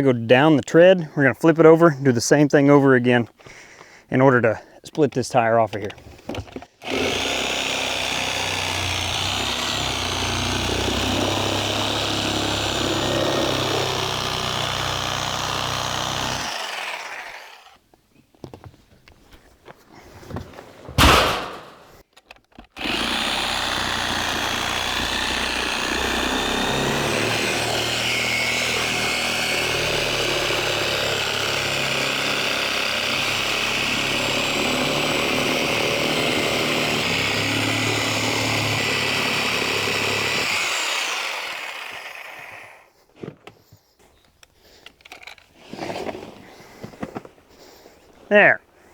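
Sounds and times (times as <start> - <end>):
power cutting tool cutting rubber: 6.8 - 17.8, 21.0 - 22.0, 22.8 - 42.9
loud burst: 21.0 - 21.9.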